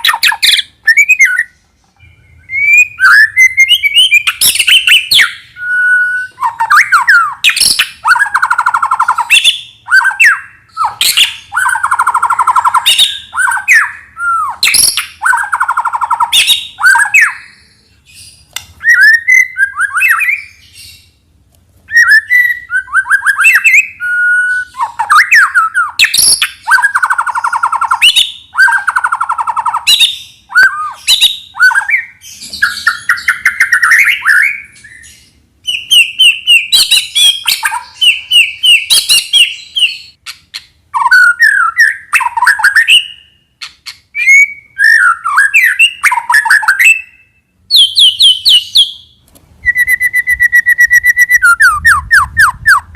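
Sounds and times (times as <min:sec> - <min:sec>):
bird singing whistles and chatter: 0:00.0 - 0:21.0, 0:21.9 - 0:40.2, 0:41.0 - 0:52.9.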